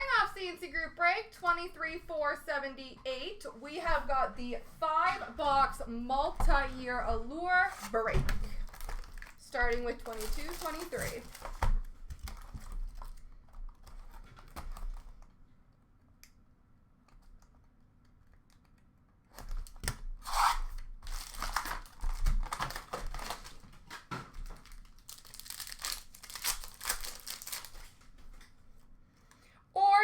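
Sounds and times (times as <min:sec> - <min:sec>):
wrappers crinkling: 0:07.4 - 0:15.2, 0:19.6 - 0:28.5
card packs tearing open: 0:08.6 - 0:09.4, 0:10.0 - 0:13.2, 0:19.6 - 0:28.0.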